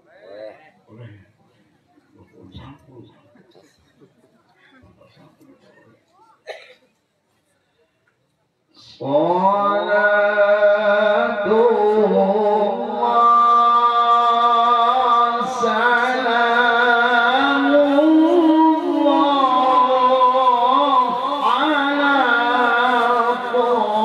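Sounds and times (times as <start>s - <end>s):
man chanting verses: 8.8s - 24.0s.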